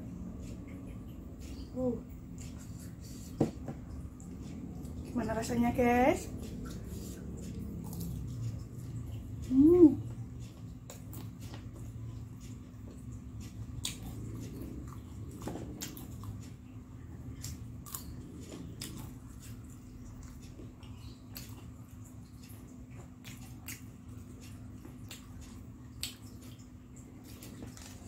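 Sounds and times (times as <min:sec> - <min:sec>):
steady low hum: 0:00.0 - 0:28.0
crunchy chewing of fried snacks: 0:10.4 - 0:28.0.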